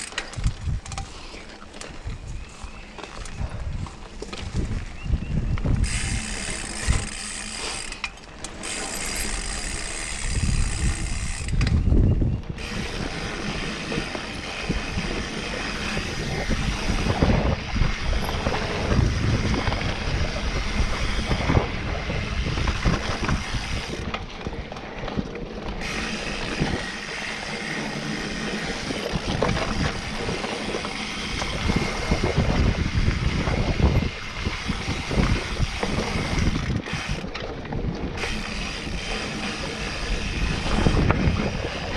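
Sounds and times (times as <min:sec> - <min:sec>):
bicycle freehub clicking: 0:00.0 - 0:02.0, 0:02.9 - 0:41.9
wind buffeting microphone: 0:00.0 - 0:08.0, 0:08.6 - 0:41.9
bike chain and frame rattling: 0:00.0 - 0:41.9
tyres rolling on dirt: 0:12.4 - 0:41.9.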